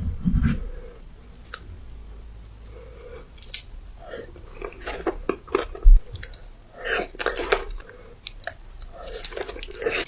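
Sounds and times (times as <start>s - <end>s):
chewing and biting: 4.3s - 10.0s.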